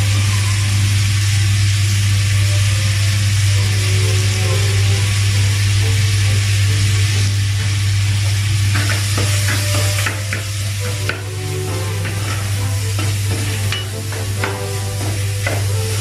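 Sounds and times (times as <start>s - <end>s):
meat sizzling in a pot: 0.0s - 16.0s.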